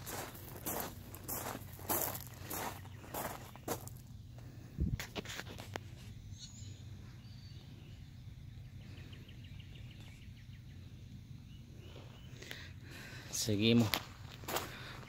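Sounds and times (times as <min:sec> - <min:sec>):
low outdoor rumble: 0:00.0 - 0:15.0
small bird singing: 0:00.1 - 0:04.0, 0:06.3 - 0:13.8.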